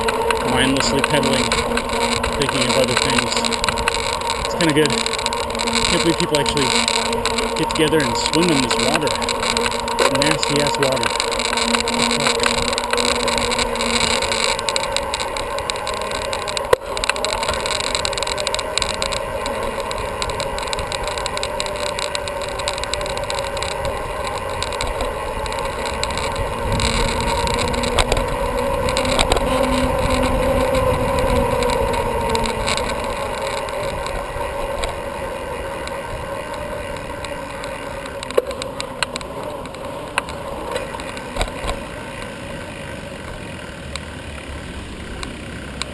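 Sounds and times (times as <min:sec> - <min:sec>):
sharp clicks: 0:00.0 - 0:35.0
bicycle tyre and drivetrain noise: 0:00.0 - 0:45.9
faint hum drifting in pitch: 0:00.0 - 0:45.9
wind on microphone: 0:23.3 - 0:35.0.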